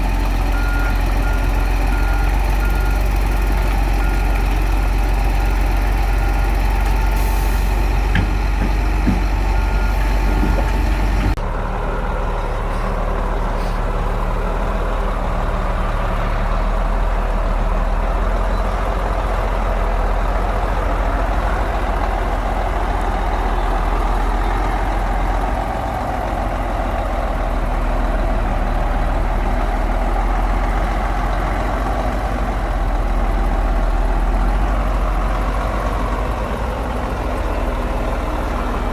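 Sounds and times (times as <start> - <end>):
bulldozer diesel engine running: 0.0 - 38.9
reversing alarm beeping: 0.5 - 3.1, 5.4 - 11.1.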